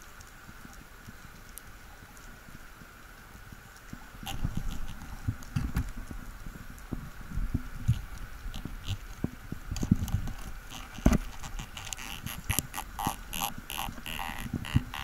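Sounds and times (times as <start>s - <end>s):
short rasping bursts: 10.7s - 15.0s.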